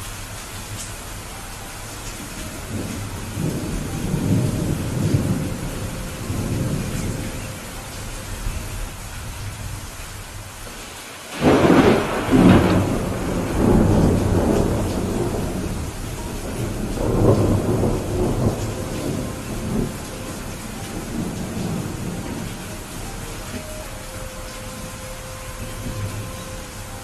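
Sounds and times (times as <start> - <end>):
rain hiss: 0.0 - 27.0
close thunderclap rumbling: 2.4 - 10.0, 10.7 - 23.7.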